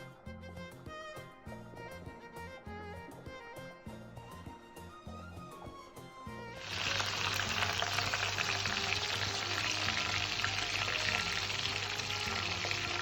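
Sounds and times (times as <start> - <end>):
violin music: 6.4 - 13.0
potatoes sizzling in hot oil: 6.6 - 13.0.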